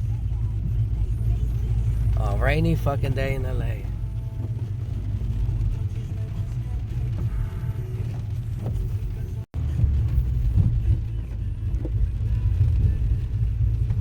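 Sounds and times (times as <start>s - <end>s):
car cabin low rumble: 0.0s - 14.0s.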